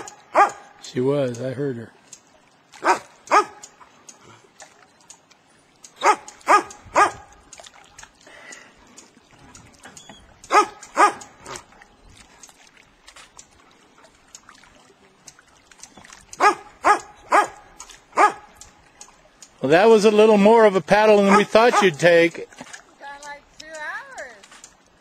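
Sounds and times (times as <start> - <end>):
dog barking: 0.0 - 0.7, 2.8 - 3.6, 6.0 - 7.3, 10.5 - 11.6, 16.4 - 17.6, 18.2 - 18.5, 21.3 - 22.0.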